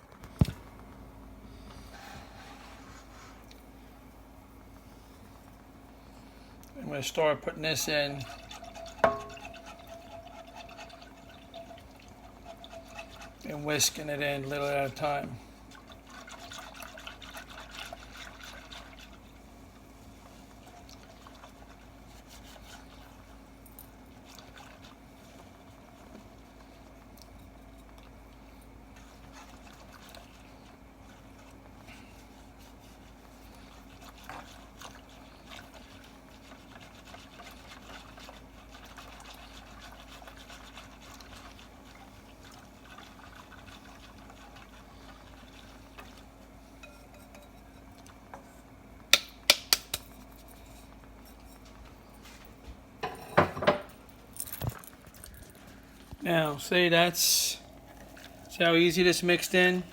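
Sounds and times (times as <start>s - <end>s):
steady low hum: 0.0s - 23.9s, 38.6s - 59.9s
liquid sloshing and pouring: 7.7s - 15.0s, 15.7s - 19.4s
whisk clicks: 49.1s - 50.1s.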